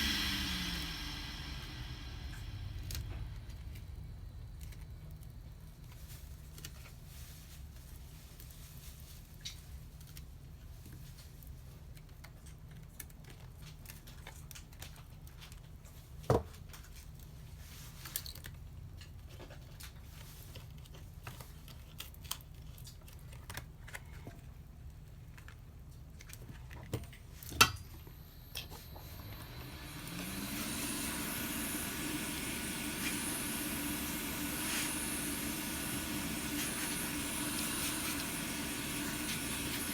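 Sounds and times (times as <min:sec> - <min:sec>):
blower whine and hiss: 0:00.0 - 0:05.8, 0:27.5 - 0:39.9
low steady hum: 0:00.0 - 0:06.2, 0:27.1 - 0:39.9.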